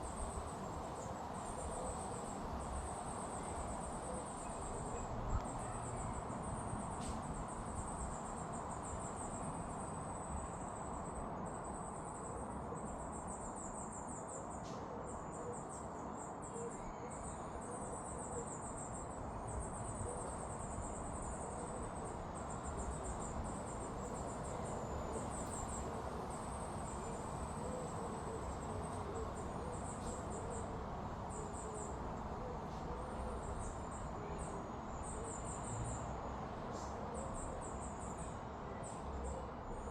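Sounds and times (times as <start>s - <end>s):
insects chirping: 18.0s - 39.9s.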